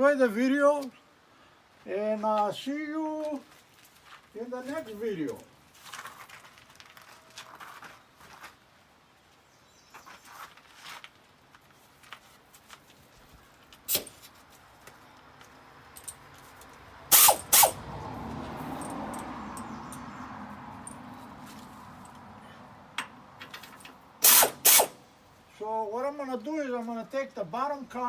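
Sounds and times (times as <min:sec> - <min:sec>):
sharp click: 0:13.9 - 0:14.2, 0:17.1 - 0:17.8, 0:24.2 - 0:25.0
tools clinking and knocking: 0:15.9 - 0:17.8, 0:18.6 - 0:20.1, 0:23.0 - 0:24.9
machine whirr: 0:17.1 - 0:17.8, 0:24.2 - 0:25.0.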